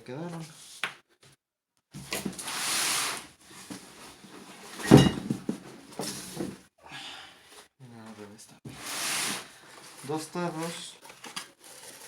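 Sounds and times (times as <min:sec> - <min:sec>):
box set down with thump: 0:04.8 - 0:06.6
packaging rustling: 0:09.8 - 0:12.0.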